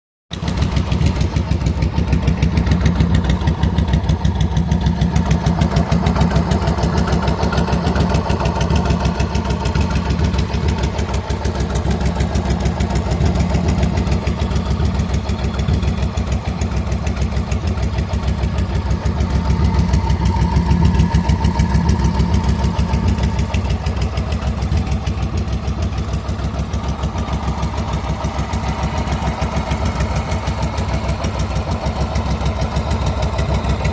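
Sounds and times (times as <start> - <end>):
motorcycle engine idling: 0.3 - 33.9.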